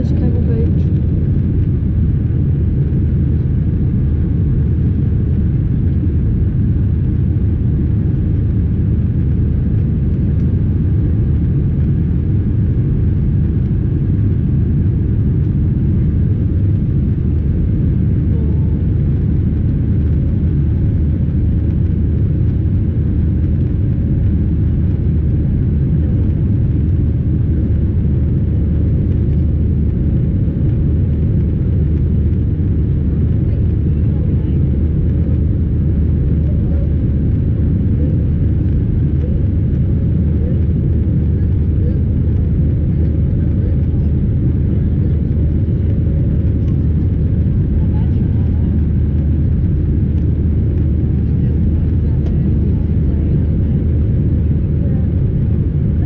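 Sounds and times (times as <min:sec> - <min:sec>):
airplane engines rumbling in cabin: 0:00.0 - 0:56.0.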